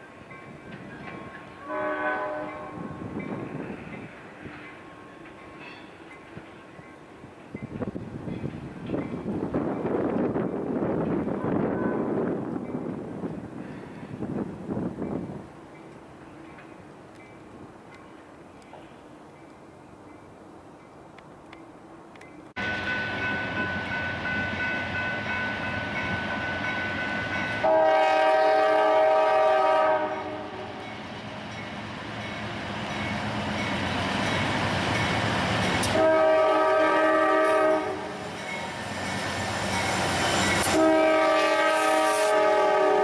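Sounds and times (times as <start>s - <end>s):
moving train rumble: 0.0s - 43.0s
locomotive horn chord blasts: 1.6s - 3.1s, 27.6s - 30.8s, 35.8s - 38.2s, 40.6s - 43.0s.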